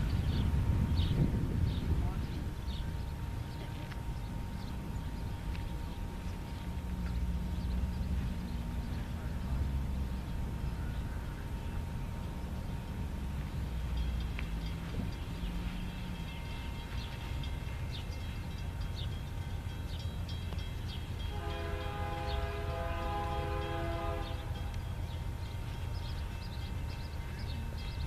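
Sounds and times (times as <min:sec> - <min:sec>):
diesel locomotive rumbling: 0:00.0 - 0:28.0
locomotive air horn chord: 0:21.2 - 0:24.8.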